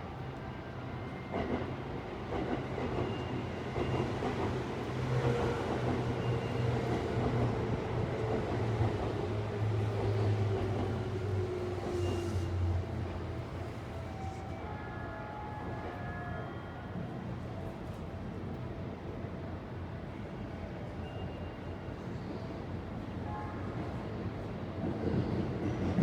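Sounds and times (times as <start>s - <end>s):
electric train rumbling past: 0.6s - 14.7s.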